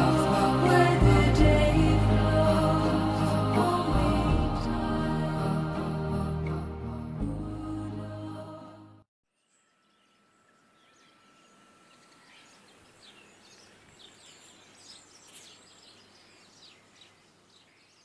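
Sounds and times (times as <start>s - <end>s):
small birds chirping: 9.4s - 18.0s.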